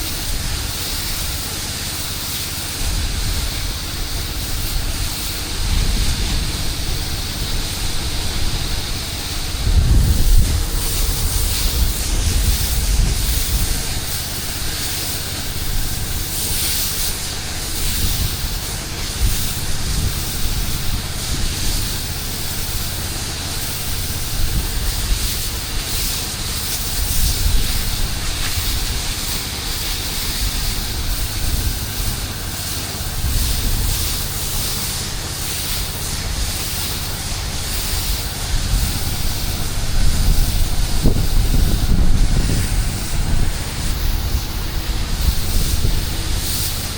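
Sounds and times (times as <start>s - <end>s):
pressure washer spraying: 0.0s - 46.9s
low rumble: 2.9s - 14.7s, 38.5s - 46.6s.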